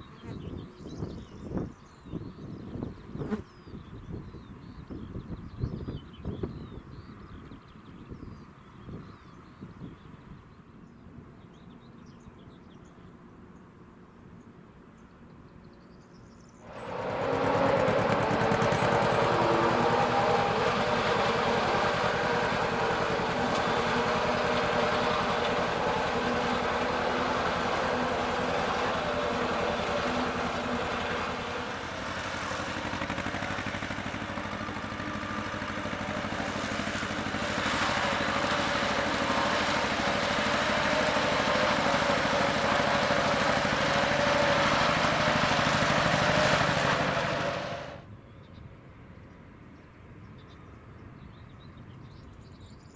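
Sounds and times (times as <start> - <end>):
large vehicle engine running: 16.6 - 48.1.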